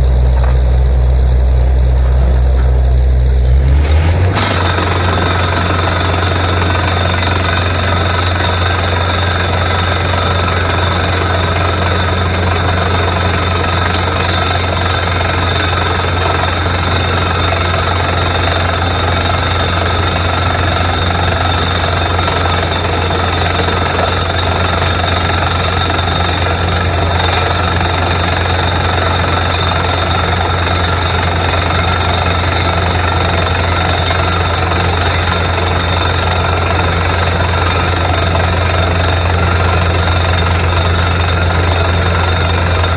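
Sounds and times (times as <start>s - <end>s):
air-driven hammer drilling: 0.0s - 42.9s
deep machine hum: 0.0s - 42.9s
drilling rig engine: 0.0s - 42.9s.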